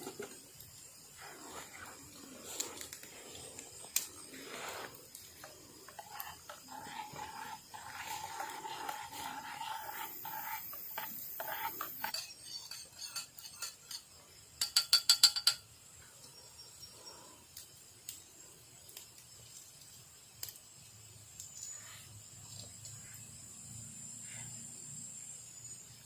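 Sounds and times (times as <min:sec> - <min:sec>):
faint stirring sounds: 0:00.0 - 0:23.3
metal utensil clinking on cookware: 0:11.5 - 0:15.7.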